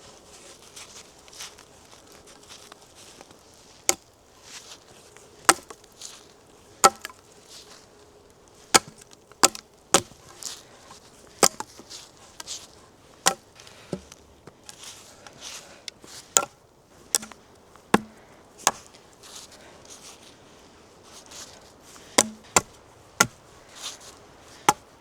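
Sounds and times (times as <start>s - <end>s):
soft rustling: 0.0s - 25.0s
wood chopping strikes: 5.4s - 5.8s, 6.8s - 7.2s, 8.7s - 10.5s, 11.3s - 12.6s, 13.2s - 14.8s, 16.3s - 19.0s, 21.9s - 24.9s.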